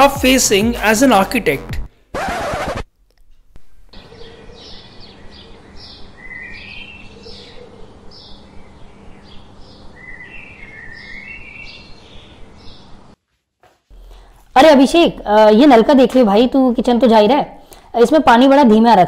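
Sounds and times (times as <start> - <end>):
birds chirping: 4.0 - 13.2.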